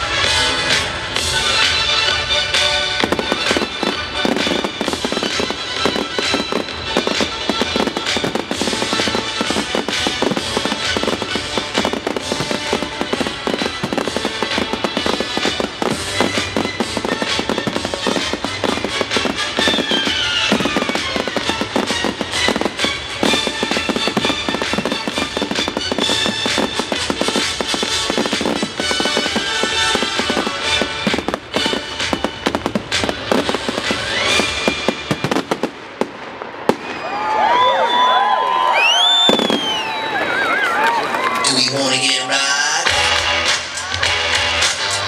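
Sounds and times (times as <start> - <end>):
music: 0.0 - 35.6, 42.1 - 45.0
fireworks bangs and crackling: 0.0 - 45.0.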